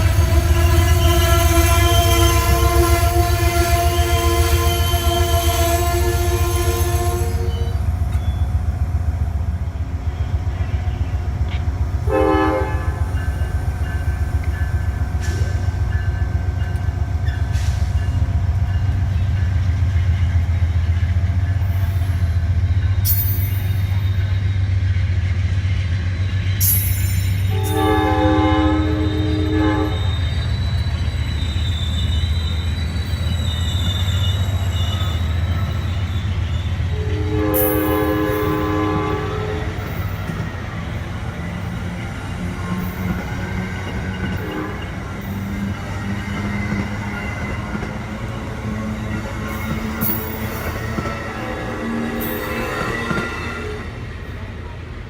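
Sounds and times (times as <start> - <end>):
train horn blasts: 0.0 - 7.9, 12.0 - 13.4, 27.5 - 30.3, 36.8 - 40.4, 44.2 - 45.3
train rumbling past: 0.0 - 55.0.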